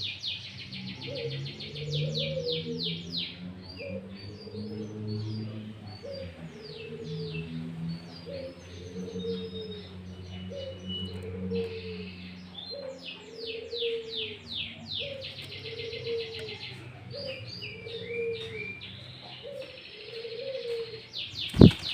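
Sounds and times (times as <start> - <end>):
low cooing call: 0.6 - 21.9
songbird whistled song: 8.2 - 21.9
buzzy bird trill: 21.5 - 21.9.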